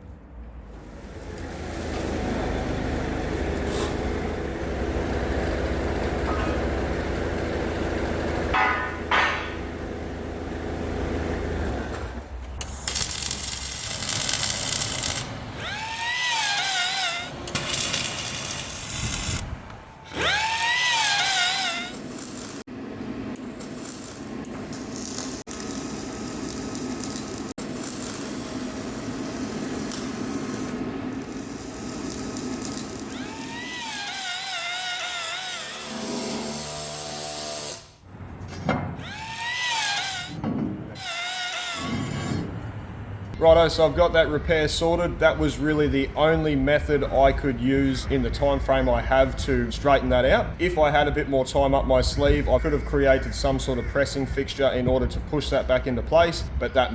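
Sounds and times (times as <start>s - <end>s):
machine hum: 0.6s - 23.6s
metal cutting or grinding: 12.6s - 22.7s, 23.5s - 38.1s, 39.0s - 43.0s
power tool whine: 12.6s - 22.7s, 23.9s - 38.1s, 39.0s - 42.5s.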